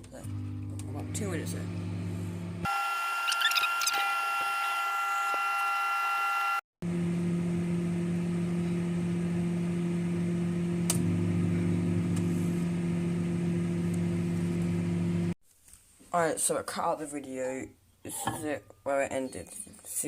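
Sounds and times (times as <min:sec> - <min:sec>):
microwave oven humming: 0:00.1 - 0:15.4
microwave click: 0:10.8 - 0:11.2.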